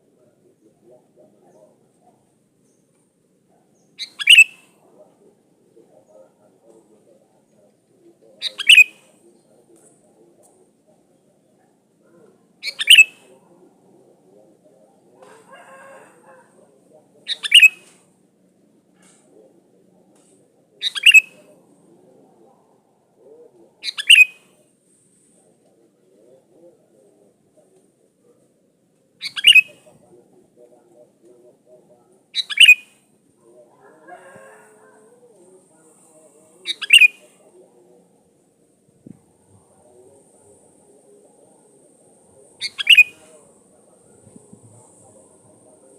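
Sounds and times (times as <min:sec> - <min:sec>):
bird chirping phrases: 0:00.0 - 0:15.2, 0:17.2 - 0:17.9, 0:19.0 - 0:24.6, 0:29.2 - 0:30.4, 0:31.7 - 0:33.0, 0:35.4 - 0:38.2, 0:39.5 - 0:45.9
bird singing bright notes: 0:03.8 - 0:04.7.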